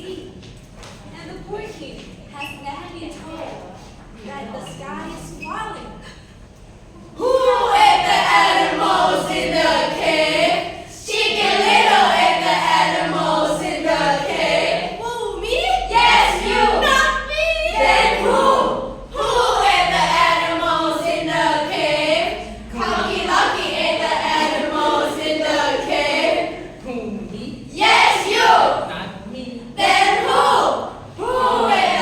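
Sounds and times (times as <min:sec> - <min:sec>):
children singing: 0:07.2 - 0:26.8, 0:27.8 - 0:28.9, 0:29.8 - 0:32.0.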